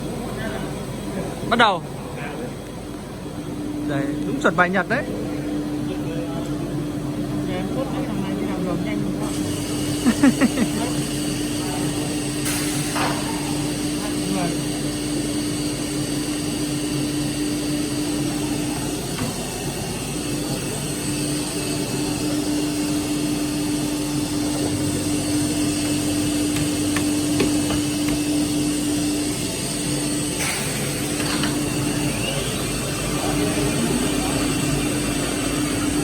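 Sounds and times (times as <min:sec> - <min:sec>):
machine humming: 0:00.0 - 0:36.0.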